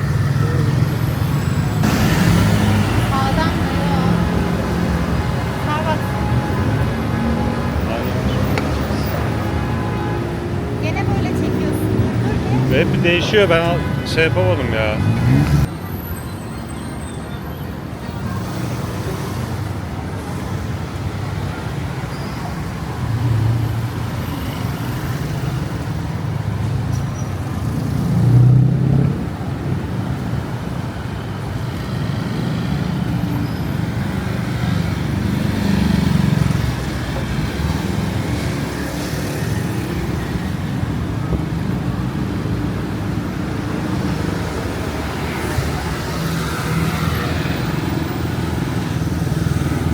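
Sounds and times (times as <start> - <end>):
vehicle engines and tyre noise: 0.0 - 49.9
vehicles passing: 0.0 - 49.9.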